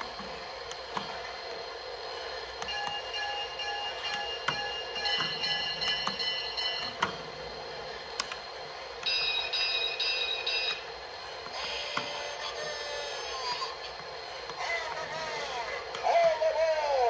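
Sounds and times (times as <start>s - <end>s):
toy train electronic tones: 2.6s - 7.2s, 9.0s - 10.9s, 11.5s - 13.8s.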